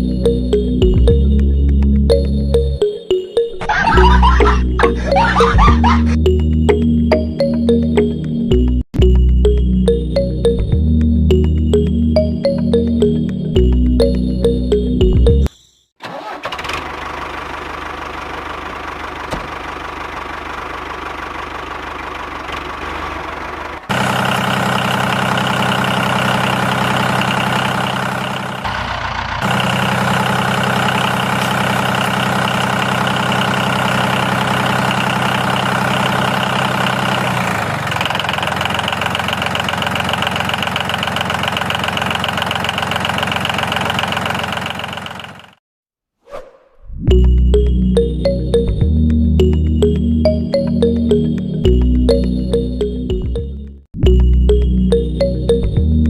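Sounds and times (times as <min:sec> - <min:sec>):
small tractor engine running: 0:16.0 - 0:45.6.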